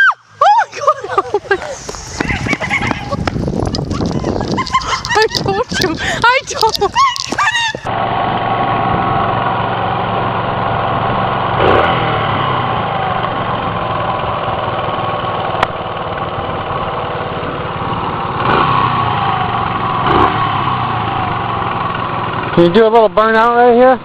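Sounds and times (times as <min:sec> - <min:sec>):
motorcycle engine revving: 0:02.5 - 0:24.0.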